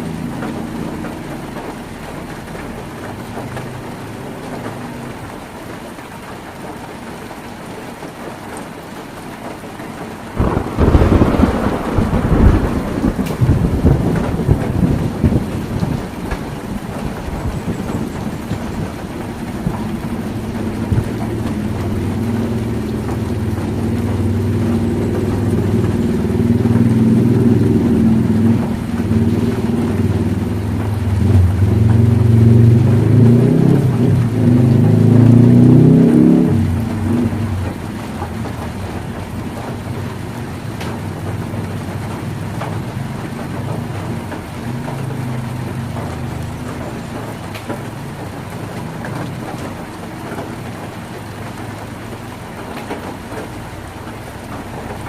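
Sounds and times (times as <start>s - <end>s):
heavy rain on a tin roof: 0.0s - 55.0s
thunderclap rumbling: 10.0s - 55.0s
low rumble: 19.6s - 35.2s.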